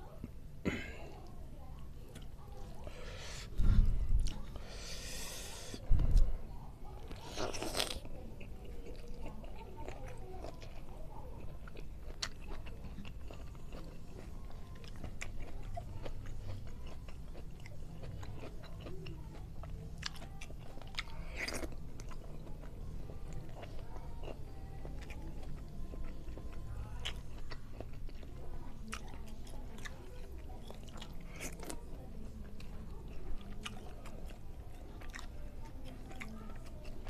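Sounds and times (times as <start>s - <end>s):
person chewing food: 2.1s - 6.1s, 7.0s - 37.0s.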